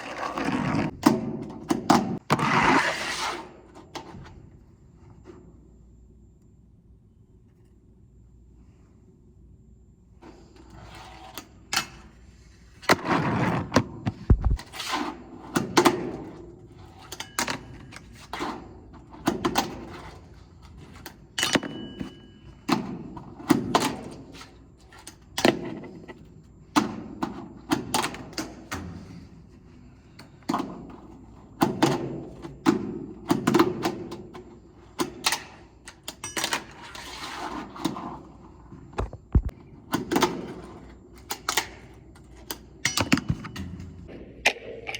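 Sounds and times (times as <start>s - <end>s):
fingerboard wheels rolling: 0.0s - 3.3s.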